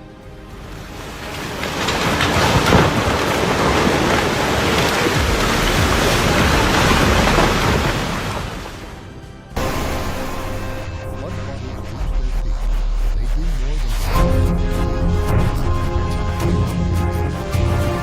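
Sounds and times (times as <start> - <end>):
dense patter of water: 0.6 - 11.1.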